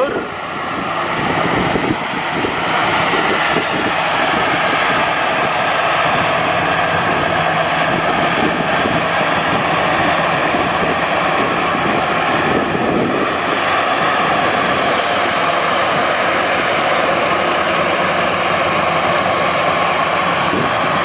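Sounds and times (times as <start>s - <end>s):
combine harvester running: 0.0s - 21.0s.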